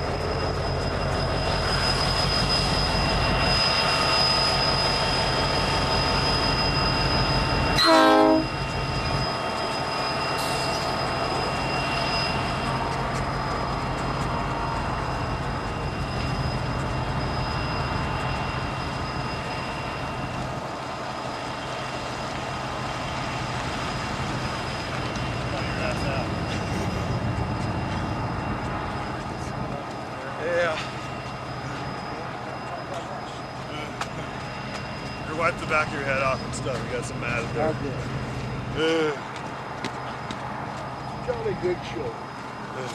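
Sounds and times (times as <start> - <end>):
train running: 0.0 - 42.9
loud train horn blast: 7.8 - 8.5.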